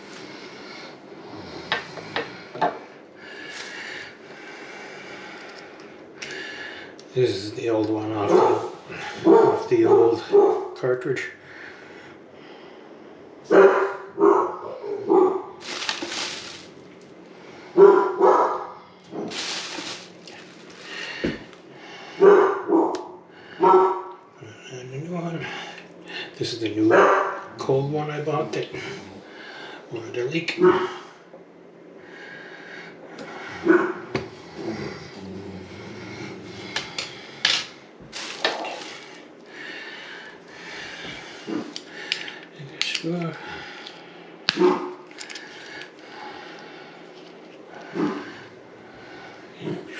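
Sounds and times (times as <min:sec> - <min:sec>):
dog barking: 0:08.3 - 0:10.8, 0:13.5 - 0:15.5, 0:17.8 - 0:18.8, 0:22.2 - 0:24.1, 0:26.9 - 0:27.4, 0:33.6 - 0:34.0, 0:44.6 - 0:45.0.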